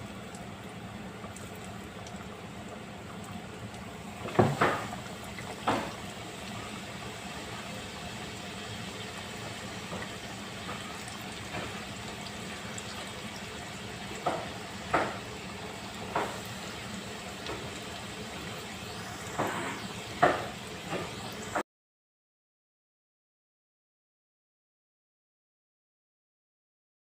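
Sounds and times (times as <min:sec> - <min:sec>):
chicken deep-frying in hot oil: 0:00.0 - 0:21.6.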